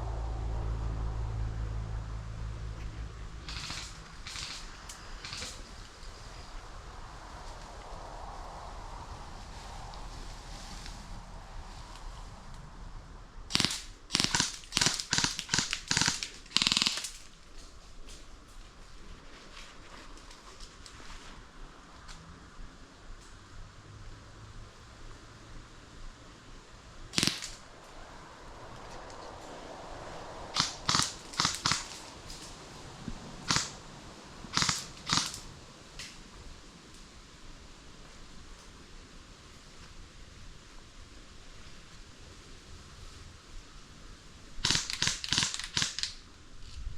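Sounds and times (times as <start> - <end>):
airsoft gun full-auto bursts: 3.5 - 5.6, 13.5 - 17.2, 27.1 - 27.6, 30.6 - 32.1, 33.4 - 33.8, 34.5 - 35.4, 44.6 - 46.2.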